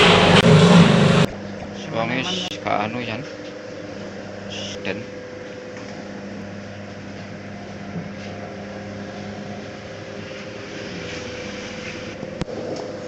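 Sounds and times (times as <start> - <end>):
electric mixing machine running: 0.0 - 3.1.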